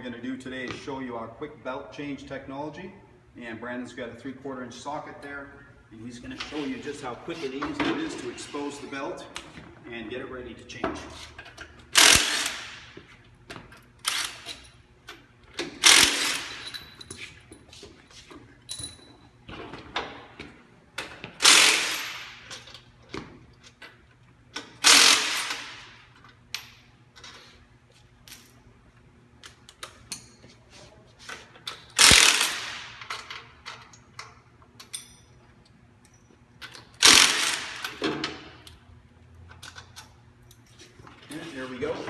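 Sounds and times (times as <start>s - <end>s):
impact wrench running: 11.4s - 14.7s, 15.6s - 17.1s, 21.0s - 22.8s, 24.6s - 26.1s, 31.8s - 33.7s, 36.8s - 38.6s.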